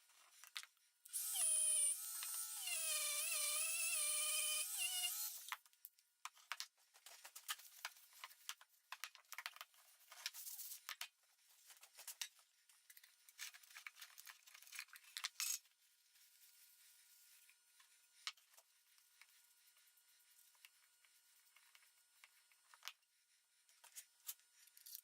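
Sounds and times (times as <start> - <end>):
small parts and tools clicking: 0.3 - 11.2, 11.9 - 15.7, 23.8 - 25.0.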